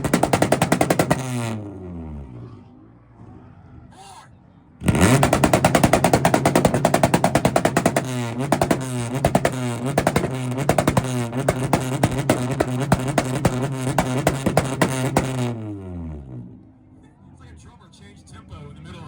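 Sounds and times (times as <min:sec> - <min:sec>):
exhaust popping and crackling: 0:00.0 - 0:02.0, 0:04.8 - 0:16.6
car engine revving at limiter: 0:00.0 - 0:03.4, 0:04.8 - 0:16.7.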